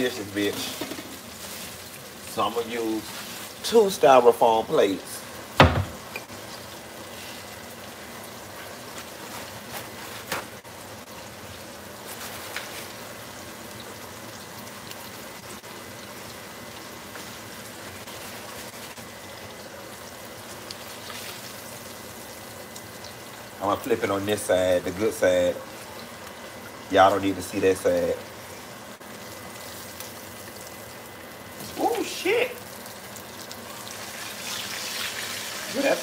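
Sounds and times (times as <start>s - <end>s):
pork chops sizzling in oil: 0.0s - 36.0s.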